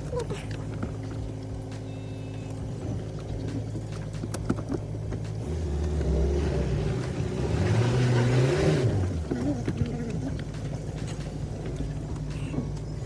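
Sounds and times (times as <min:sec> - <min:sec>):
car engine labouring and revving: 0:00.0 - 0:13.0.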